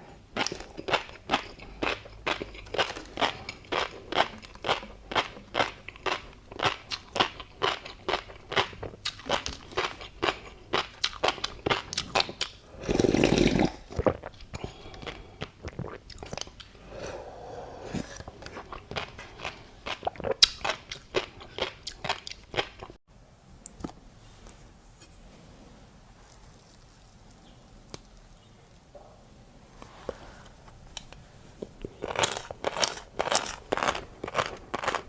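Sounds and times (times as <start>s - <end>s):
crunchy chewing: 0.4s - 17.1s, 17.8s - 23.0s, 31.7s - 35.0s.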